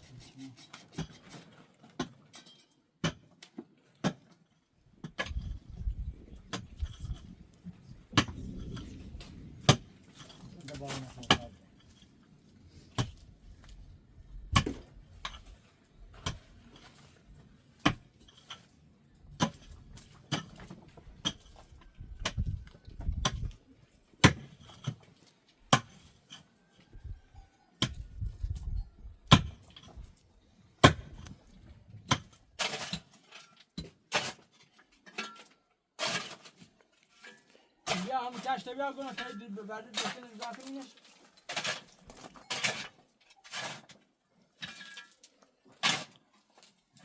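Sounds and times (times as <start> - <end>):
low rumbling: 5.6 - 10.5.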